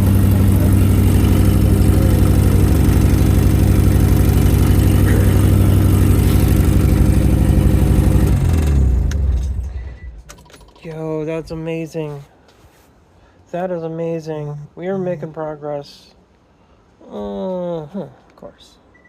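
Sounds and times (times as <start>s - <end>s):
car engine idling: 0.0s - 10.2s
engine winding down: 0.0s - 10.4s.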